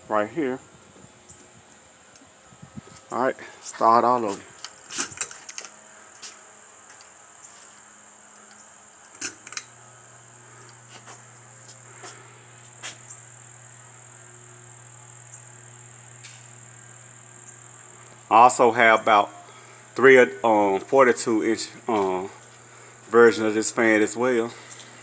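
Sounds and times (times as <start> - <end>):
fan motor humming: 0.0 - 25.0
high-pitched whine: 0.0 - 25.0.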